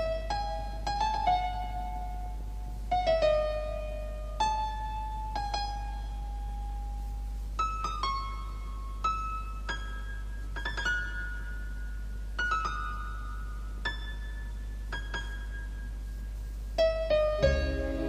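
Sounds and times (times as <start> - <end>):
keyboard playing slow notes: 17.1 - 18.0
steady low drone: 17.4 - 18.0.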